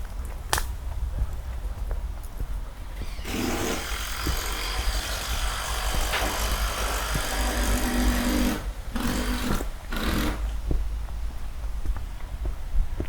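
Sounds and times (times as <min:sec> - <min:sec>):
wind rumble on microphone: 0:00.0 - 0:03.2, 0:08.6 - 0:13.0.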